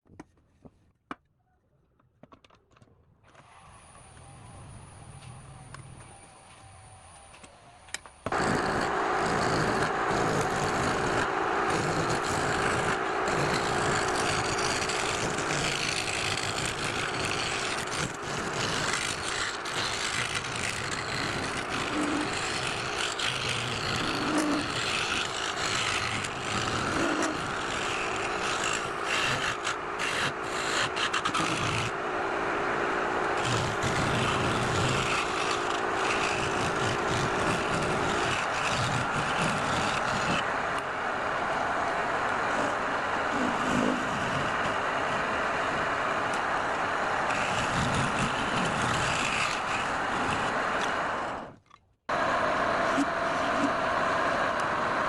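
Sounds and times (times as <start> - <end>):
turning tool scraping workpiece: 8.3 - 32.1, 33.2 - 40.5, 42.5 - 51.6
lathe running: 8.3 - 51.5.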